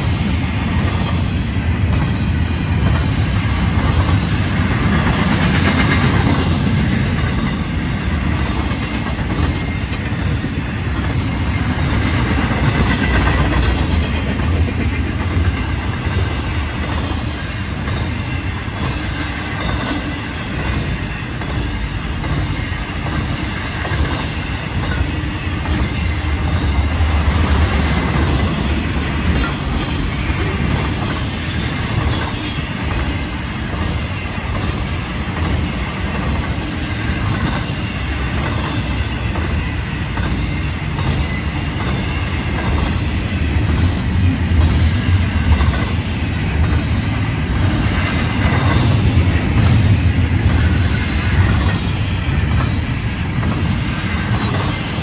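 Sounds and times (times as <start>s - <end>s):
freight train rumbling past: 0.0s - 55.0s
wheels clacking over rails: 0.0s - 55.0s.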